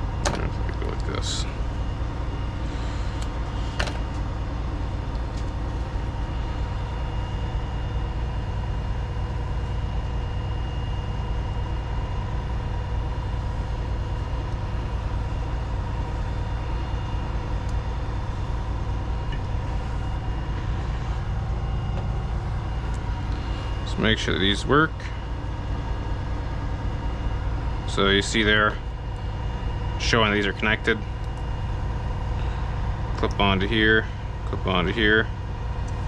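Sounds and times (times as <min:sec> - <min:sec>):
engine idling: 0:00.0 - 0:36.0.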